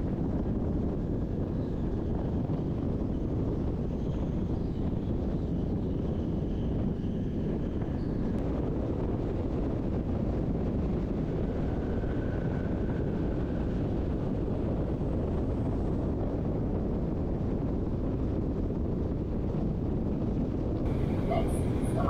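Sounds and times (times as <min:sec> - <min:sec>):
electric train rumbling: 0:20.9 - 0:22.0.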